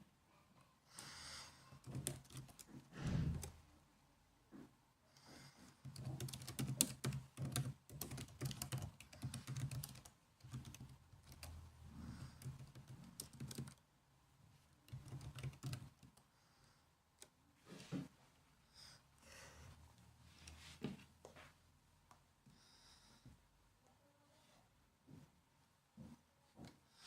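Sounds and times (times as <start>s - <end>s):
laptop keyboard typing: 1.8s - 3.6s, 5.8s - 13.8s, 14.9s - 16.3s.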